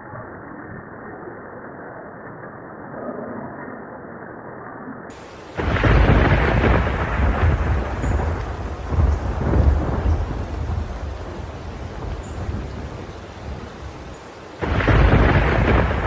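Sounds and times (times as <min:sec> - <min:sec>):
deep thunder rumble: 0:05.1 - 0:16.0
thunder crack: 0:05.1 - 0:16.0.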